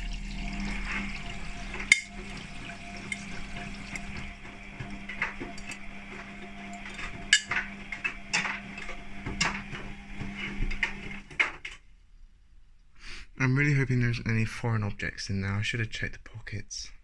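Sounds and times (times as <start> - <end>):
steady hum: 0.0 - 11.6
washing machine tumbling: 0.0 - 11.8.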